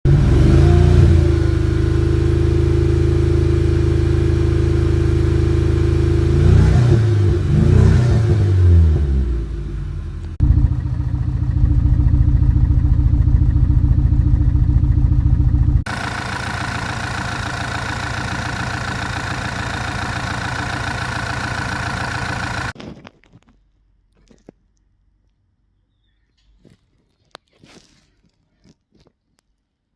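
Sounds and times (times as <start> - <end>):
car engine idling: 9.1 - 22.8.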